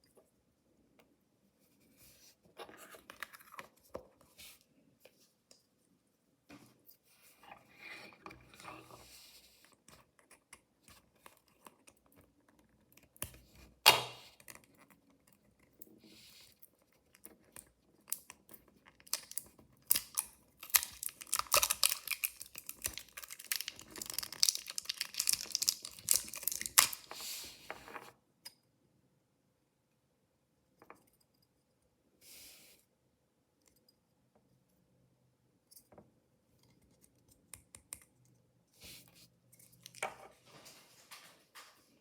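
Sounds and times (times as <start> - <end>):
packaging crinkling: 19.1 - 27.1
packaging tearing: 19.1 - 27.1.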